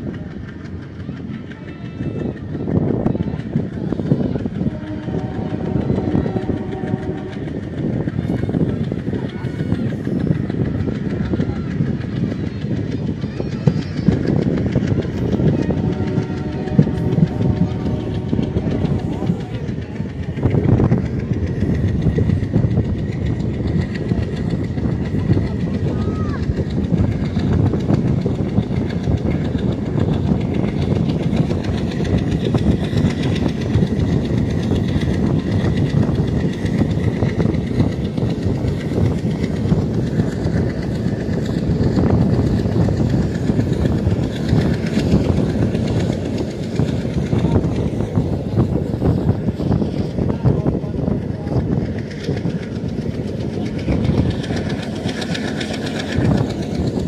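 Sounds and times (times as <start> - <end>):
clickety-clack over rail joints: 0.0 - 57.0
train wheels rumbling on rails: 0.0 - 57.0
wheels clacking over rail joints: 51.4 - 57.0.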